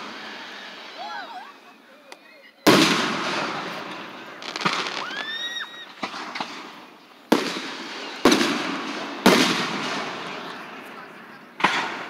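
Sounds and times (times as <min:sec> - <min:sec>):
rising firework whistle: 0:00.0 - 0:01.8, 0:03.0 - 0:06.6
fireworks crackling and banging: 0:00.0 - 0:12.0.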